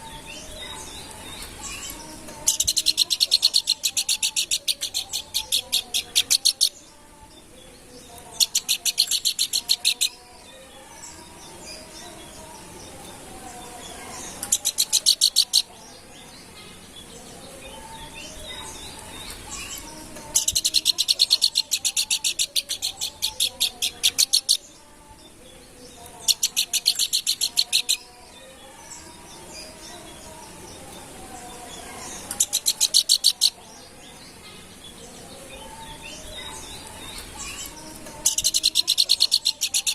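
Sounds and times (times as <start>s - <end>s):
songbird high-pitched trills: 17.7s - 24.8s, 35.6s - 39.9s.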